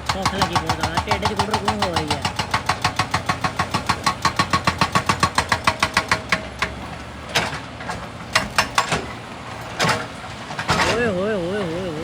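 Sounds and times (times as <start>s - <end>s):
machine engine running: 0.0s - 5.0s, 9.0s - 12.0s
hydraulic rock breaker hammering: 0.0s - 12.0s.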